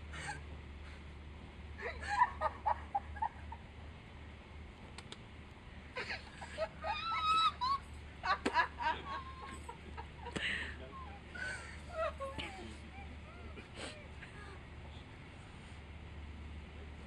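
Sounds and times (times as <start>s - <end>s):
low train rumble: 0.0s - 17.0s
high-pitched laughter: 6.0s - 10.3s.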